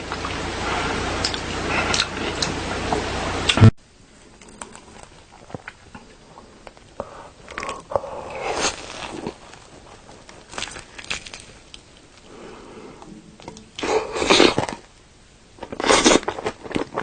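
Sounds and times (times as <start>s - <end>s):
crunchy biting and chewing: 7.5s - 12.0s, 15.6s - 17.0s.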